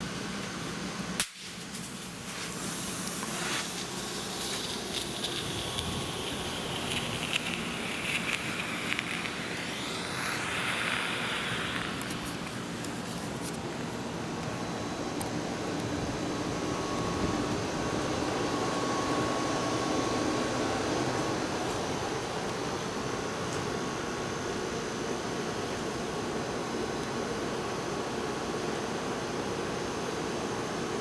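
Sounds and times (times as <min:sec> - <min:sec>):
crackles: 0:00.4 - 0:22.7
smoke grenade hissing: 0:01.2 - 0:13.5.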